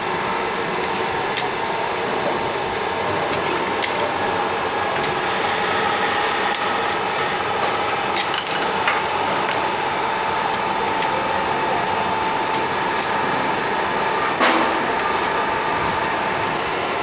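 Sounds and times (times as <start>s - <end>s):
lathe machine hum: 0.0s - 17.0s
metallic clinks: 7.6s - 9.8s
metallic clank: 14.4s - 16.2s.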